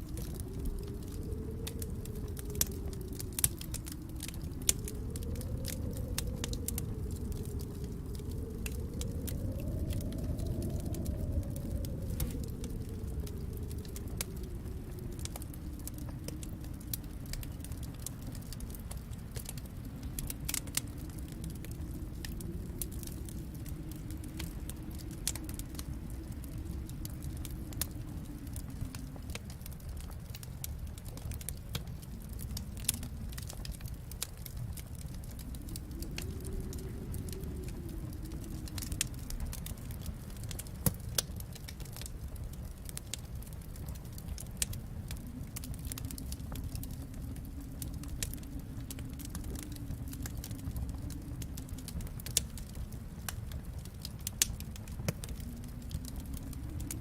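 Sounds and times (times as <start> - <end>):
low fire rumble: 0.0 - 57.0
wood fire crackling: 0.0 - 57.0.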